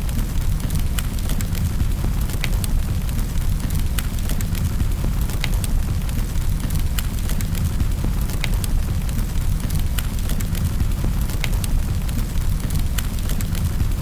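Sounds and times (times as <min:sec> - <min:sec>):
fireplace fire crackling: 0:00.0 - 0:14.0.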